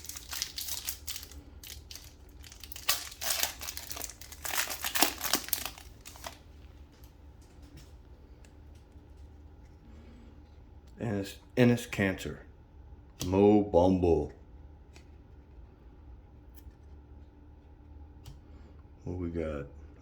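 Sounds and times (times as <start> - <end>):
card pack wrapper tearing: 0.0 - 6.5.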